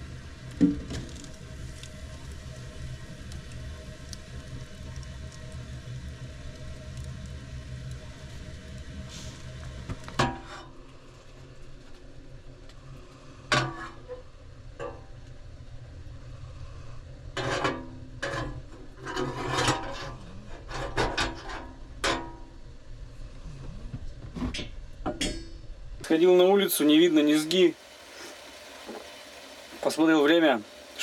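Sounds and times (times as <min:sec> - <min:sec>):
low background rumble: 0:21.7 - 0:26.1.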